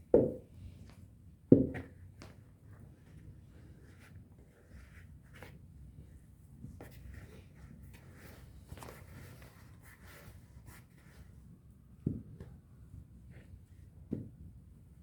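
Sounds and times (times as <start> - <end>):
soft rustles and scrapes: 1.8 - 14.5.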